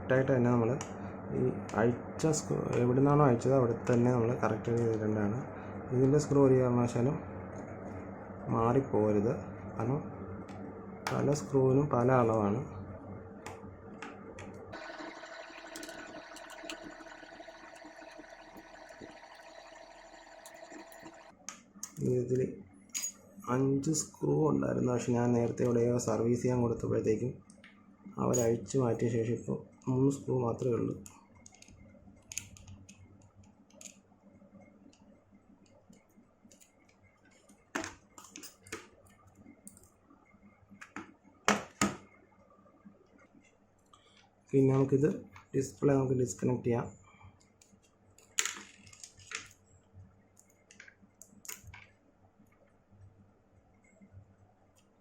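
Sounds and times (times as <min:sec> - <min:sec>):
small tools tapping metal: 0:23.0 - 0:23.2.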